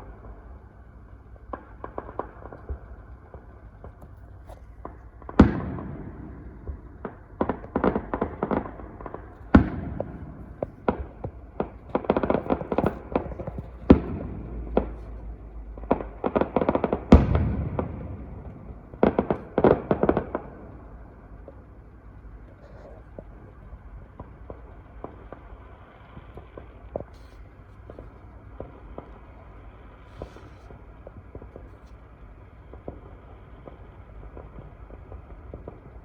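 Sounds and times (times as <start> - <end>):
rapid crackling pops: 0.0 - 36.0
firework bangs: 1.4 - 21.6, 24.0 - 32.0.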